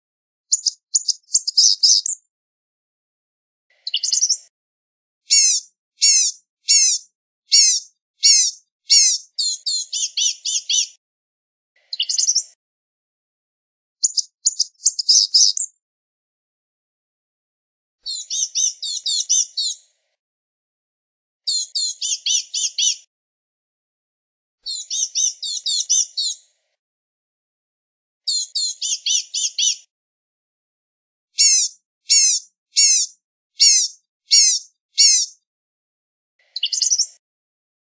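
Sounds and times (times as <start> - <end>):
bird singing high notes: 5.3 - 10.8.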